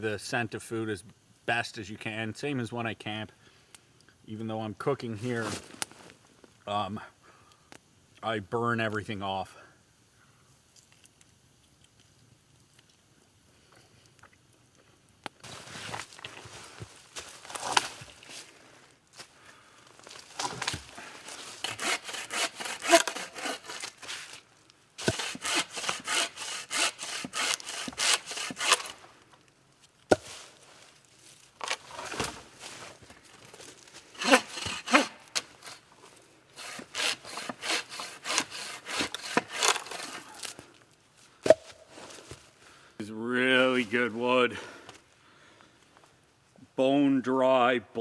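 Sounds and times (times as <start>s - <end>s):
hand saw cutting log: 20.6s - 24.4s, 25.0s - 29.0s, 34.1s - 35.9s, 36.5s - 40.5s.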